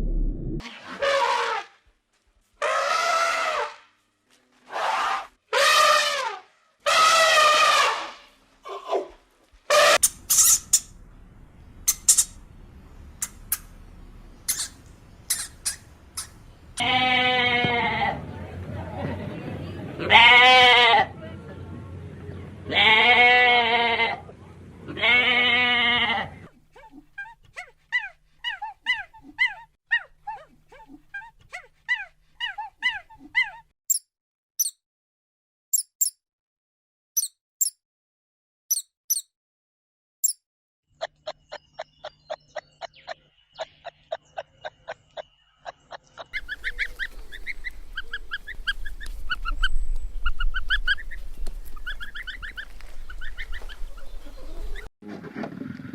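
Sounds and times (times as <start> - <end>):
high-pitched squeaks: 9.9 - 10.9, 11.9 - 12.4, 14.4 - 16.4, 38.7 - 39.3
quick chirps: 10.0 - 11.0, 11.8 - 12.4, 14.4 - 16.5, 33.9 - 34.8, 35.7 - 36.2, 38.7 - 39.3
animal bleats: 16.8 - 18.2, 20.0 - 21.1, 22.7 - 26.5.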